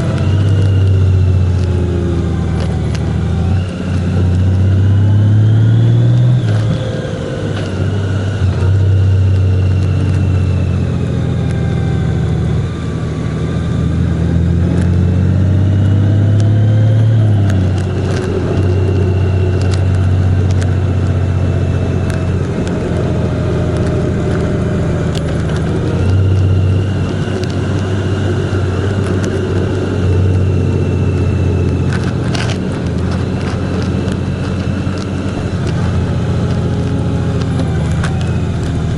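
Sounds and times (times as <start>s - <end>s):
road noise: 0.0s - 38.9s
vehicle engine driving: 0.0s - 38.9s
sharp clicks: 15.8s - 38.9s.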